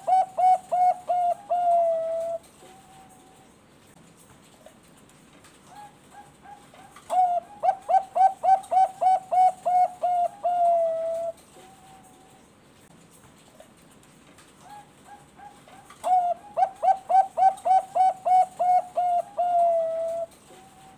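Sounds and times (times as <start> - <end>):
dove cooing: 0.0 - 3.4, 5.7 - 12.4, 14.6 - 20.9.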